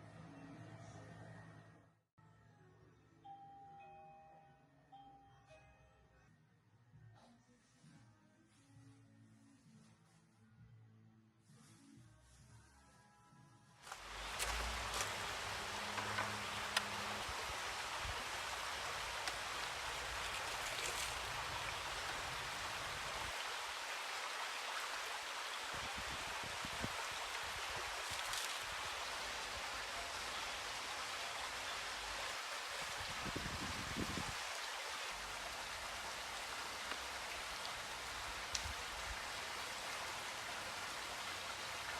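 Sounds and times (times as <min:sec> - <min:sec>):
water washing: 0:13.9 - 0:41.9.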